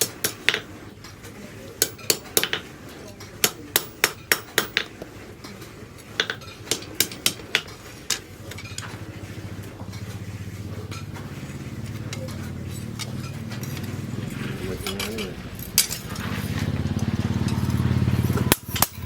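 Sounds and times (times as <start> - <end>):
hammer striking steel: 0.0 - 0.8, 1.8 - 5.0, 6.2 - 8.2, 12.0 - 16.3
low motor-like hum: 8.4 - 19.0.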